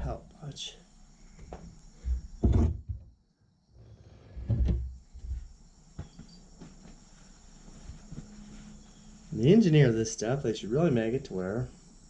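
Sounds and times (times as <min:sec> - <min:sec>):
dull thump: 0:01.4 - 0:03.1.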